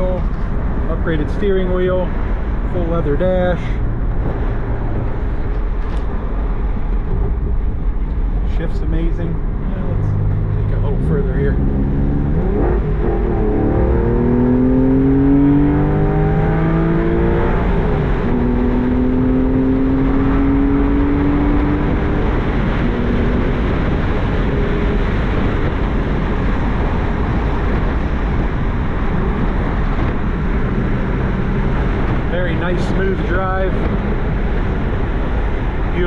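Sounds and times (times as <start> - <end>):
road noise: 0.0 - 36.0
car engine accelerating through gears: 9.3 - 36.0.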